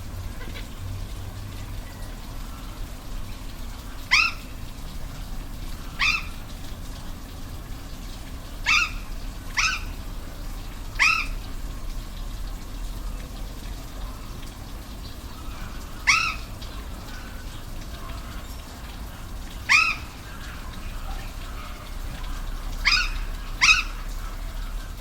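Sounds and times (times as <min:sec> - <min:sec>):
animal calling with rising calls: 0:04.0 - 0:04.5, 0:05.8 - 0:06.5, 0:08.6 - 0:10.0, 0:11.0 - 0:11.4, 0:15.3 - 0:17.4, 0:19.5 - 0:22.0, 0:22.7 - 0:24.6
waterfall rushing: 0:13.8 - 0:25.0.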